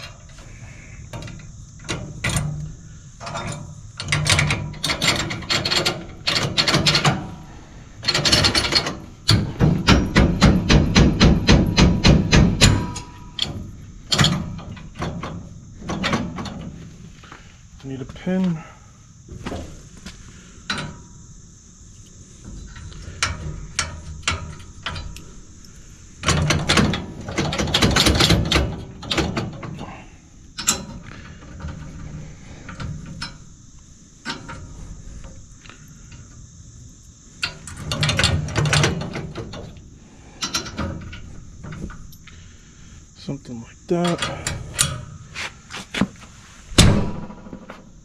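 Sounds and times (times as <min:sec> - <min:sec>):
metal clinks and rattles: 0:01.1 - 0:16.7.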